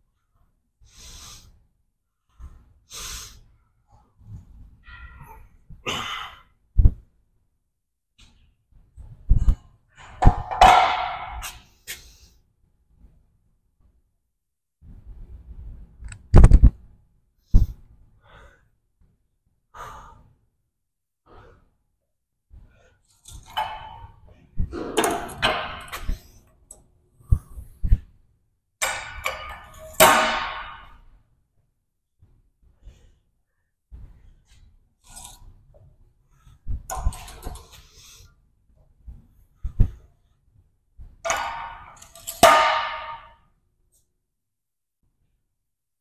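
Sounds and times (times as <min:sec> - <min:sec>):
man breathing hard: 0:17.6 - 0:18.8, 0:19.7 - 0:20.4
handling knocks and scraping: 0:22.6 - 0:28.1, 0:28.8 - 0:31.0, 0:36.6 - 0:38.1, 0:41.0 - 0:43.4.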